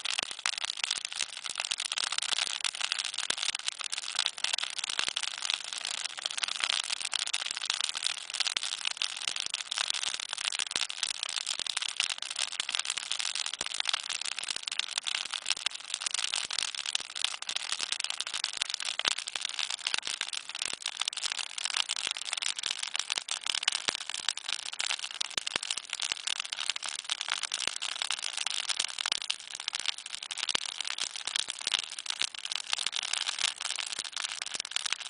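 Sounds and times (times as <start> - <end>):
campfire crackling: 6.0 - 30.7.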